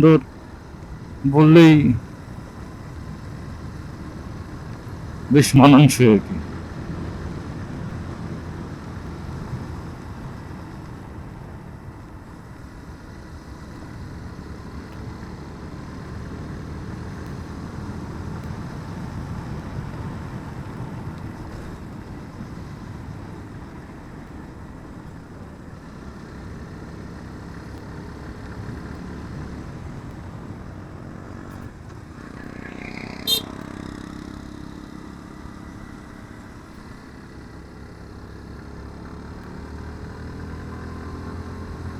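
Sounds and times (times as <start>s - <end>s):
motorcycle engine revving: 32.2s - 36.2s.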